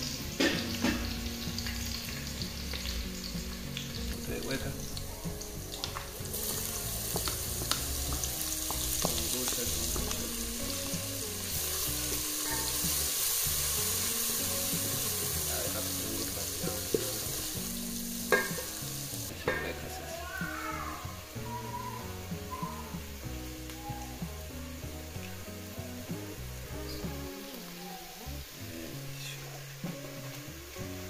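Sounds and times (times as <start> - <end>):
vegetables sizzling in hot oil: 0.0 - 31.0
wooden spoon knocking on a pot: 18.3 - 18.7.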